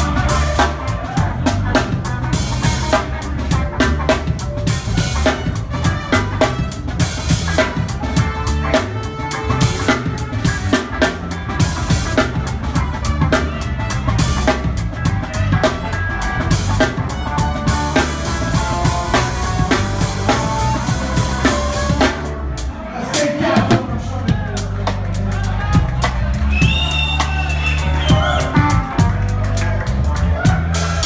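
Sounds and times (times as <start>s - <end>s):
live rock band playing: 0.0s - 31.0s
bass drum thumps: 9.5s - 22.4s, 23.6s - 29.5s.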